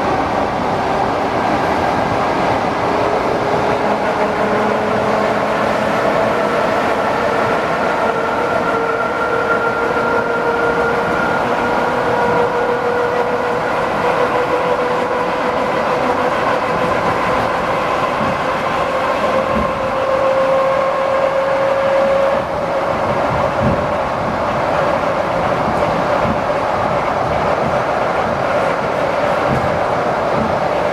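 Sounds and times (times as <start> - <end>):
electric train whine: 0.0 - 30.9
train wheels rumbling on rail: 0.0 - 30.9.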